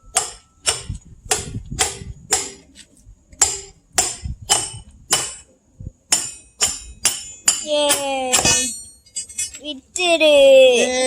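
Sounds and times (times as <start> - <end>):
hammer striking steel wedge: 0.1 - 2.6, 3.4 - 5.4, 6.1 - 9.6.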